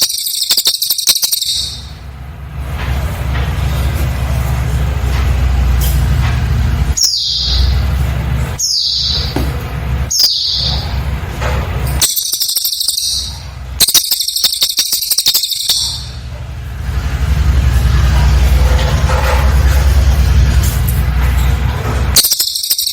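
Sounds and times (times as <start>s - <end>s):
bird whistling and trilling: 0.0s - 2.0s, 7.0s - 7.8s, 8.6s - 9.4s, 10.1s - 11.0s, 12.0s - 16.2s, 22.2s - 22.9s.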